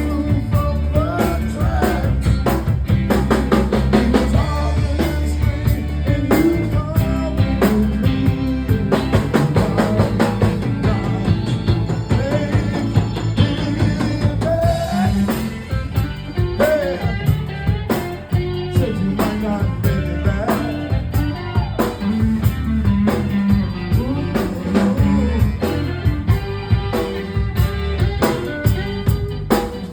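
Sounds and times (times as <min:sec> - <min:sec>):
blues-rock band playing: 0:00.0 - 0:29.9.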